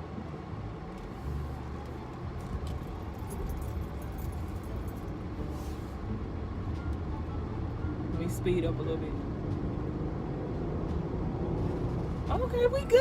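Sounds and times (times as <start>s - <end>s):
car engine and tyre rumble: 0.0s - 13.0s
faint light clicks and jingles: 2.1s - 5.2s.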